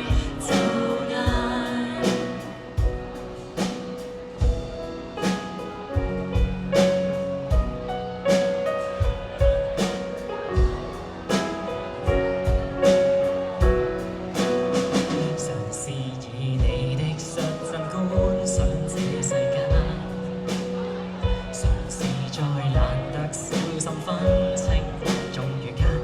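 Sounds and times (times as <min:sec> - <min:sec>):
live band playing pop: 0:00.0 - 0:26.0
kick drum beats: 0:04.4 - 0:05.1, 0:05.9 - 0:06.9, 0:07.5 - 0:08.1, 0:09.0 - 0:09.8, 0:10.6 - 0:11.2, 0:12.1 - 0:13.0, 0:18.2 - 0:19.0, 0:19.7 - 0:20.1, 0:24.3 - 0:25.1.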